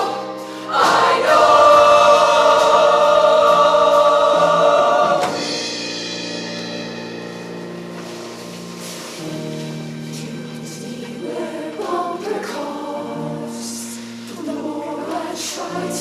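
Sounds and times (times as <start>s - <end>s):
choir holding a chord: 0.0s - 6.2s, 10.1s - 16.0s
instrumental accompaniment: 0.0s - 16.0s.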